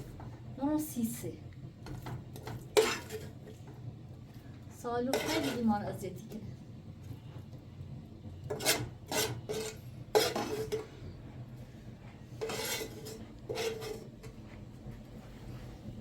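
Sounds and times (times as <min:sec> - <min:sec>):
metal kitchenware clattering: 0:08.5 - 0:10.9.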